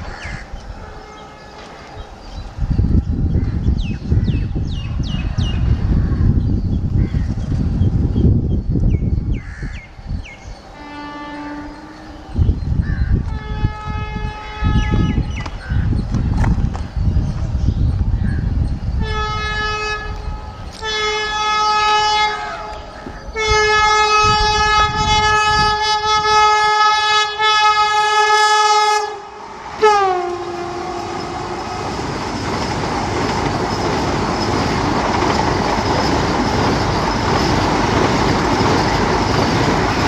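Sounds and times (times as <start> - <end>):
train wheels running on rails: 0.0 - 28.6, 29.2 - 40.0
train horn blasts: 0.8 - 2.1, 10.8 - 12.5, 13.2 - 15.3, 19.0 - 31.8.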